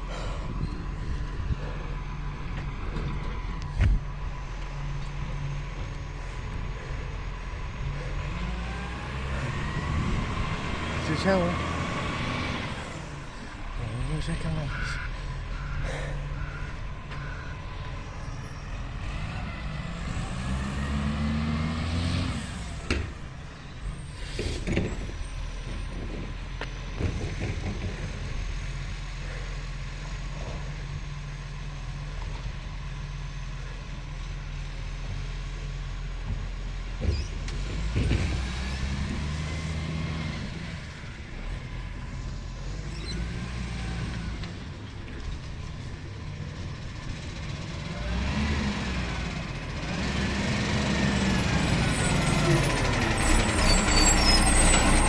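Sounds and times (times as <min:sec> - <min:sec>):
diesel engine idling: 0:00.0 - 0:37.9, 0:39.1 - 0:55.0
engine revving with rising whine: 0:00.6 - 0:28.6, 0:37.0 - 0:55.0
knocks and bangs: 0:25.8 - 0:28.6.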